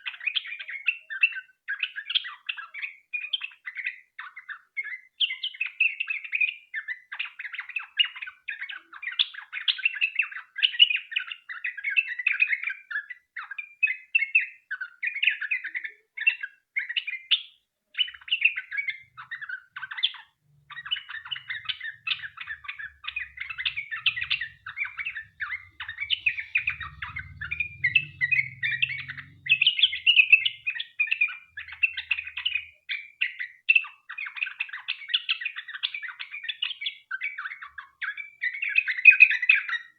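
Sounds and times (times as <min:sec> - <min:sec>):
bird singing chattering notes: 0:18.0 - 0:36.6.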